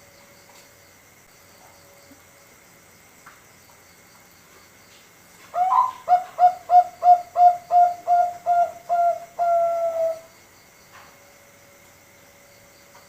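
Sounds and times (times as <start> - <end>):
dove cooing: 5.5 - 10.3.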